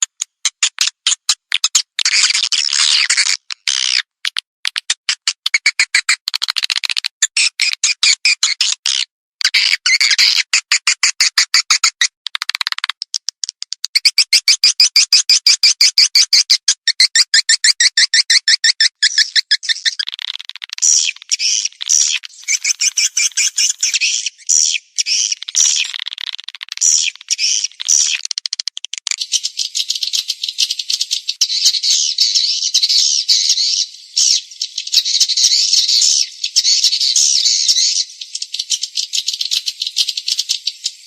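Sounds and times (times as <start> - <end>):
swiftlets chirping: 19.1 - 36.3.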